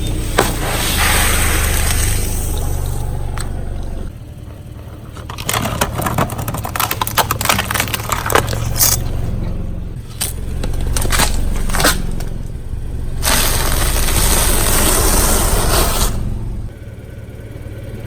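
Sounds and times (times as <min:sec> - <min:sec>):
car engine running low: 0:00.0 - 0:18.0
tyre crushing brittle objects: 0:04.6 - 0:16.3.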